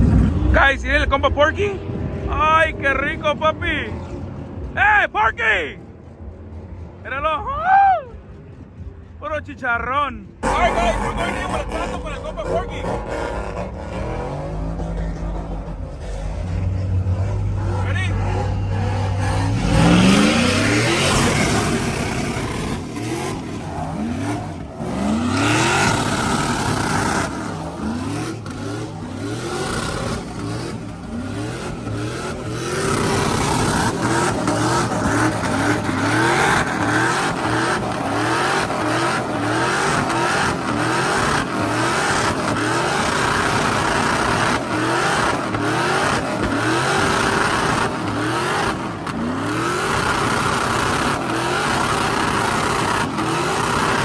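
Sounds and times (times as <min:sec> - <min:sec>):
truck engine revving hard: 0:00.0 - 0:07.5, 0:10.4 - 0:54.0.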